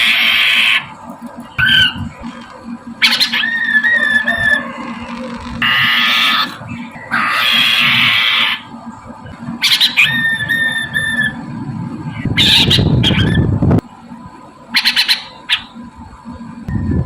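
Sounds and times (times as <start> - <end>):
bird harsh raspy call: 0.0 - 0.9, 1.6 - 2.0, 3.0 - 8.7, 9.6 - 11.4, 12.2 - 13.5, 14.7 - 15.8
bird sharp chattering: 3.0 - 8.7, 9.6 - 11.4, 12.2 - 13.5, 14.7 - 15.8.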